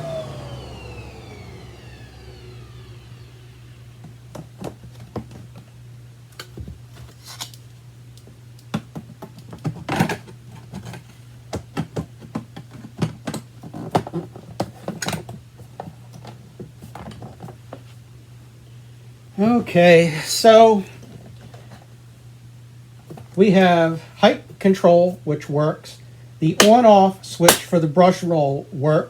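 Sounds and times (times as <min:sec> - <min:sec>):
steady low hum: 0:00.0 - 0:12.2, 0:13.6 - 0:29.0
plastic parts clicking and knocking: 0:08.6 - 0:17.6.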